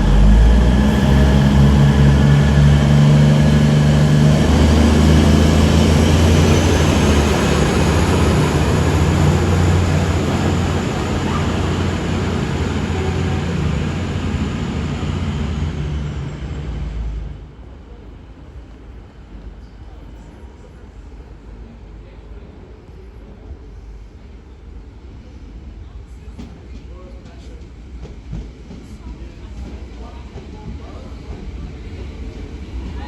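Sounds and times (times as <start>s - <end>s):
high rising whine: 0.0s - 16.5s
low train drone: 0.0s - 33.0s
passenger train passing: 0.0s - 33.0s.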